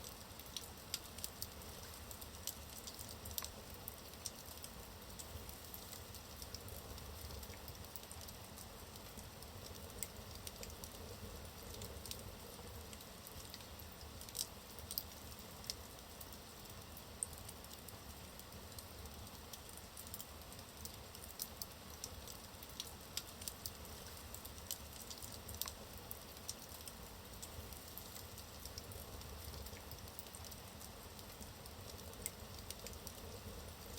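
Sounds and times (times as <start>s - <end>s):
logs crackling and popping: 19.5s - 33.9s.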